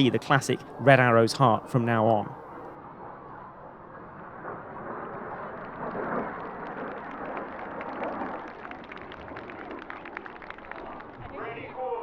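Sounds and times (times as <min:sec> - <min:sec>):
jet engine rumble: 0:00.0 - 0:11.3.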